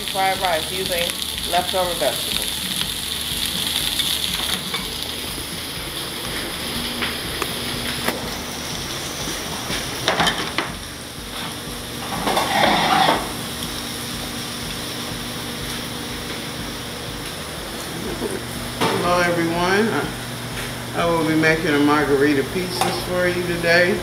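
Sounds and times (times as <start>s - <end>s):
low hum: 0.0s - 23.9s
rice sizzling in hot pan: 0.0s - 24.0s
dishes clattering: 10.0s - 10.8s, 12.0s - 13.4s.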